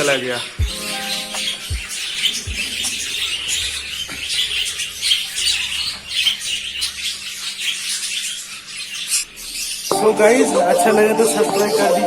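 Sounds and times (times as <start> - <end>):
budgerigars chattering and squawking: 0.0 - 11.9.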